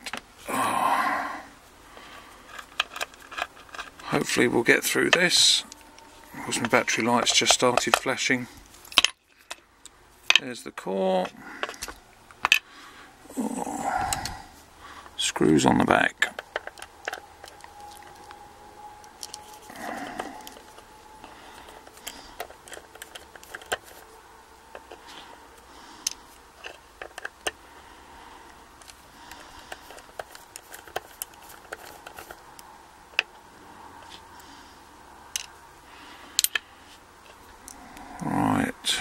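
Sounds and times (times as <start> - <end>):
screwdriver clicking and scraping metal: 2.5 - 4.4, 5.1 - 9.6, 16.2 - 18.4, 19.0 - 25.2, 26.0 - 27.6, 28.8 - 32.6.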